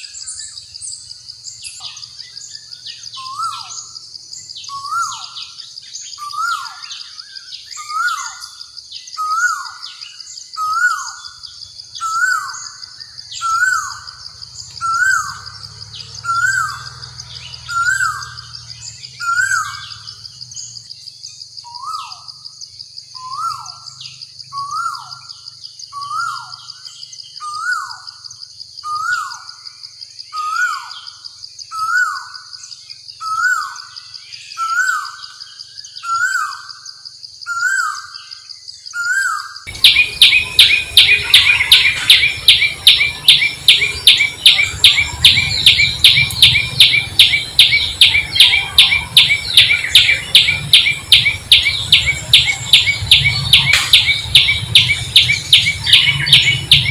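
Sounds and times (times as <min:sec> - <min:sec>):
bird call rising and falling: 0:12.0 - 0:20.7, 0:39.0 - 0:56.9
high-pitched trill: 0:39.7 - 0:56.9.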